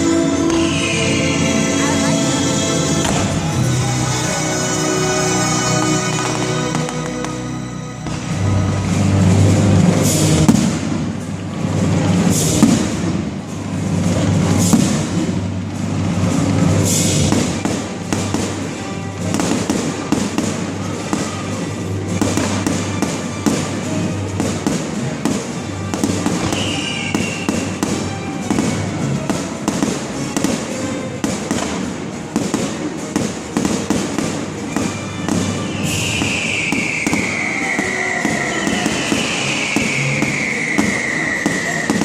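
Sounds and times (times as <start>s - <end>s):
firework falling whistle: 0.0s - 1.9s, 26.0s - 28.7s, 34.8s - 42.0s
fireworks banging and crackling: 0.0s - 42.0s
loud music: 0.0s - 42.0s.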